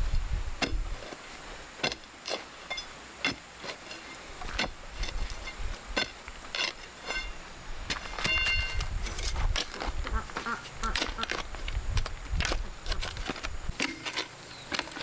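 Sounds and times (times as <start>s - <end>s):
ducks quacking: 10.1s - 11.3s.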